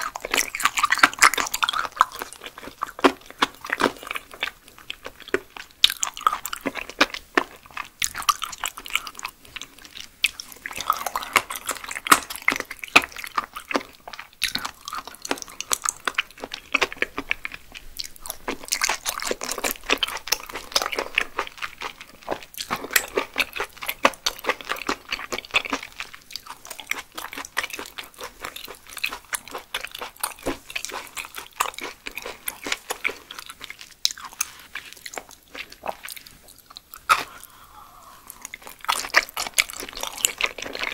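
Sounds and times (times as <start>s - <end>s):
chewing with mouth clicks: 0.0s - 40.9s.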